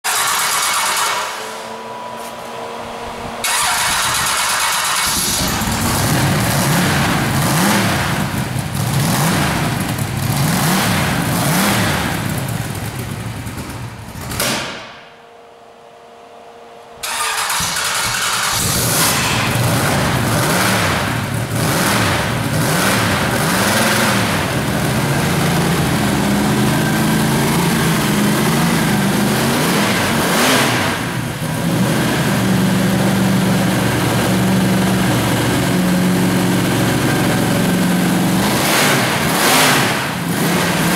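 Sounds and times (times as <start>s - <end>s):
engine revving: 0.0s - 14.6s, 17.0s - 40.9s.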